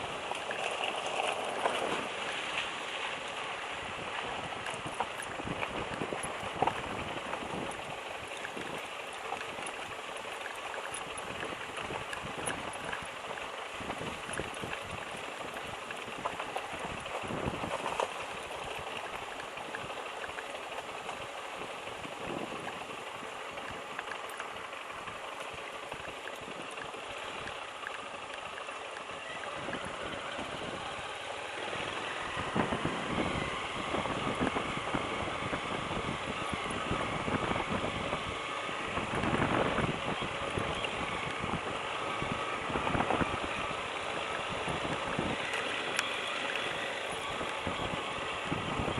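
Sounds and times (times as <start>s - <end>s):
motorcycle engine running: 3.1s - 48.9s
steady rushing noise: 29.3s - 48.9s.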